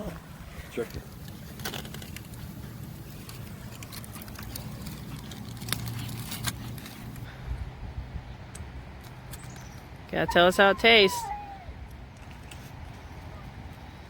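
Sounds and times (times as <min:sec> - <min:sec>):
aluminium foil crinkling: 0:01.2 - 0:07.3.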